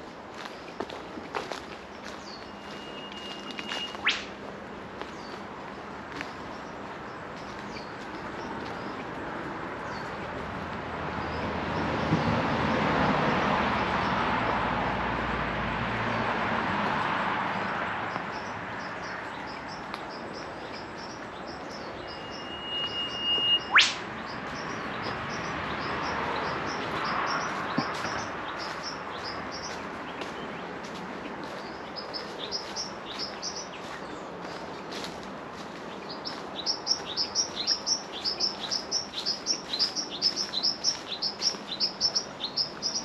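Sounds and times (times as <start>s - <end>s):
road traffic hiss: 0.0s - 43.0s
small birds chirping: 0.4s - 12.4s, 17.5s - 43.0s
whipbird whistle and whip-crack: 3.0s - 4.4s, 22.7s - 24.1s.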